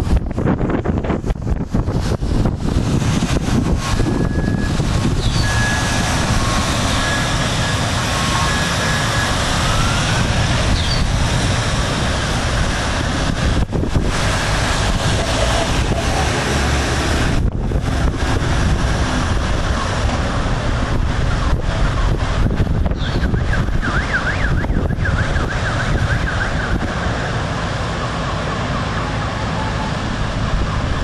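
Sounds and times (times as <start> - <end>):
wind buffeting microphone: 0.0 - 31.0
distant alarm: 3.6 - 12.1, 23.1 - 31.0.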